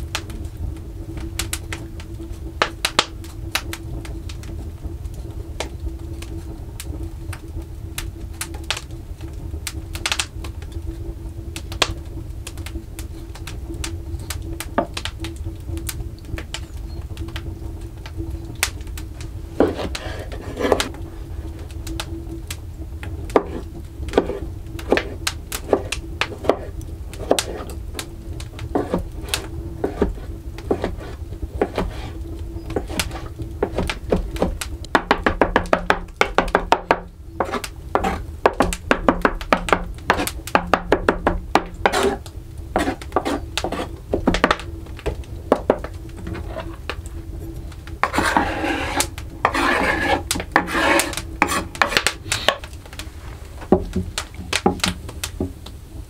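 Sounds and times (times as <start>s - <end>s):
rough scraping: 19.6s - 21.1s, 28.8s - 32.2s, 37.4s - 38.7s, 41.8s - 44.6s, 45.7s - 46.8s, 48.0s - 52.6s.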